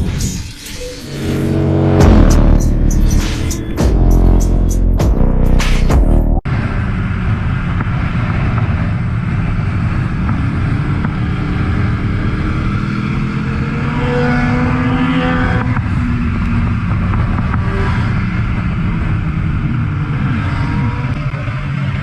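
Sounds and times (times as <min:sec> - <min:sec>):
motorcycle engine running: 0:01.1 - 0:05.4.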